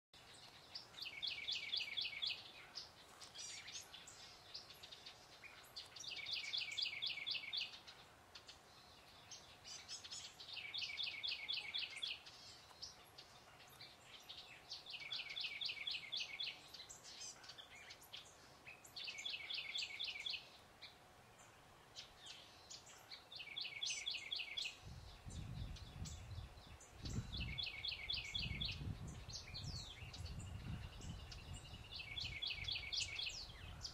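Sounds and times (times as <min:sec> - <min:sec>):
songbird trilling: 0:22.0 - 0:33.9.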